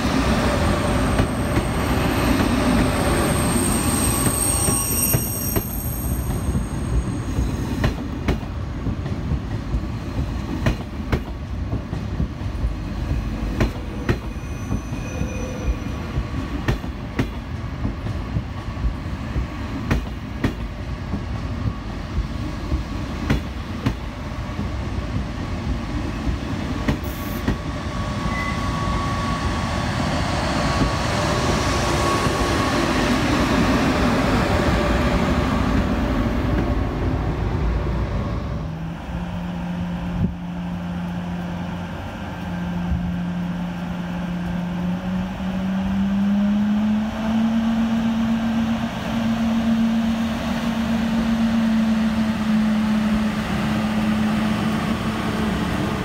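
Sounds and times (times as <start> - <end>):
train rumble: 0.0 - 56.0
wheels squealing: 0.9 - 7.6
train wheels clicking over rail joints: 7.4 - 27.7.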